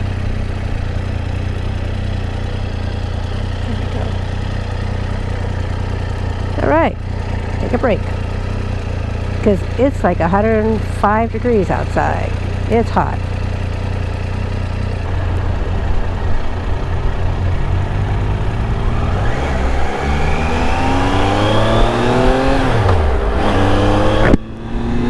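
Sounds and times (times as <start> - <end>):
motorcycle engine accelerating: 0.0 - 25.0
wind rush: 15.1 - 22.6.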